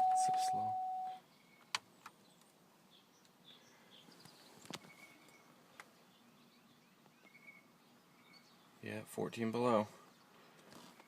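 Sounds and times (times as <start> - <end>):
faint high chirps: 0.0 - 1.7.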